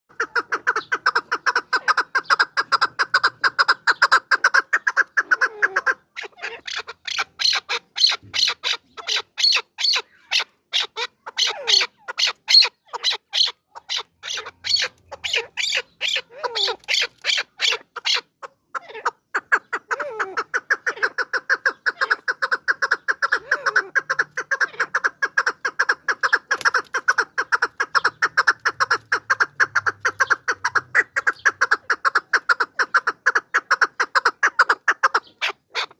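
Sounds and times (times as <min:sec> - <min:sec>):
partridge clucking calls: 0:00.1 - 0:35.9.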